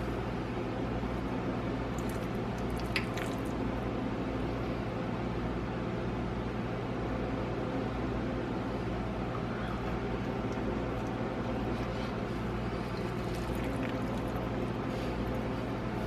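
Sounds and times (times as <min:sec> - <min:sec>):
person eating noodles: 0:10.2 - 0:15.7.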